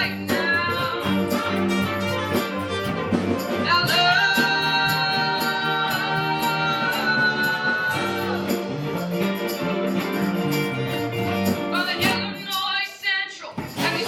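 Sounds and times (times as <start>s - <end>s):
person singing: 0.0s - 2.5s, 3.2s - 10.2s, 11.3s - 14.0s
electric guitar: 0.0s - 12.5s
drum beat with cymbals: 0.0s - 14.0s.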